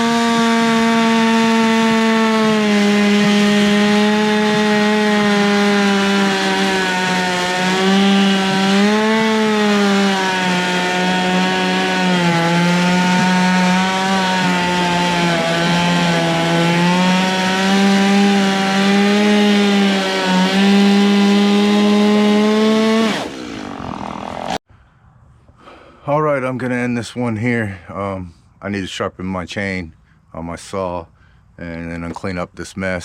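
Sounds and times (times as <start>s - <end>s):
chainsaw cutting wood: 0.0s - 24.6s.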